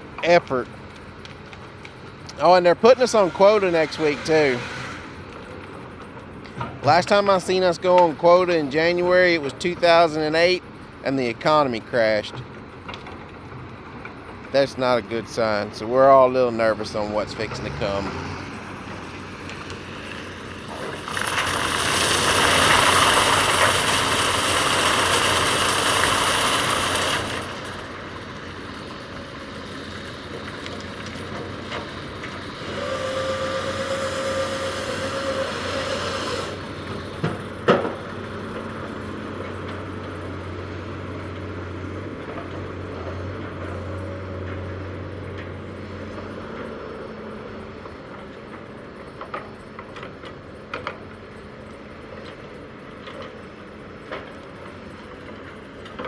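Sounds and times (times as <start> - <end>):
steady whine: 0.0 - 40.4
heavy tracked machine running: 0.0 - 56.0
loud hissing surge: 20.2 - 28.0, 32.6 - 36.7.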